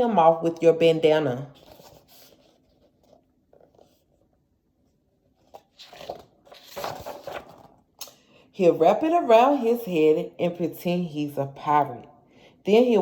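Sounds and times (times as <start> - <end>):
paper rustling and crinkling: 1.6 - 4.2, 5.4 - 7.8.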